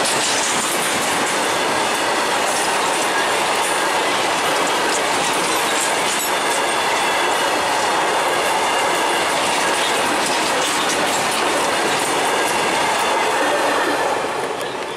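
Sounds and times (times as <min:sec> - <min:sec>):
steel wheels clattering over rails: 0:00.0 - 0:14.9.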